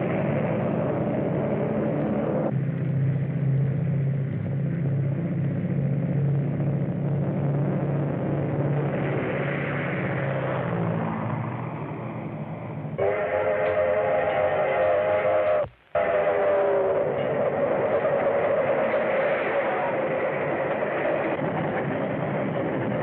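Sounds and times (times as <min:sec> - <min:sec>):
propeller aircraft engine droning: 0:00.0 - 0:23.0
steam locomotive whistle: 0:13.0 - 0:21.2.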